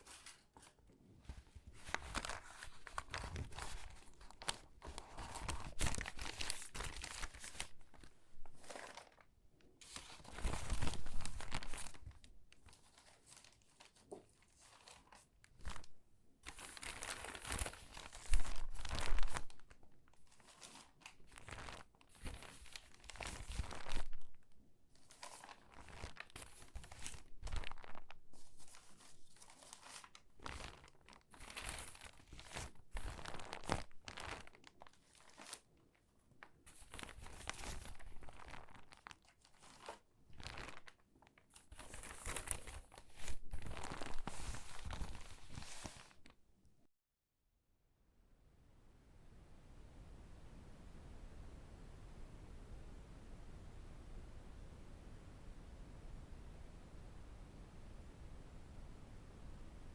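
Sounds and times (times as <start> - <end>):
magazine pages crinkling: 0.0 - 24.4, 25.0 - 35.7, 36.4 - 46.4.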